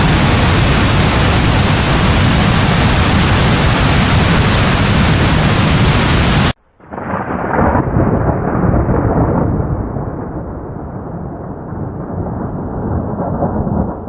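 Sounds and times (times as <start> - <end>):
heavy rain hissing: 0.0 - 7.1
rolling thunder rumble: 0.0 - 14.0.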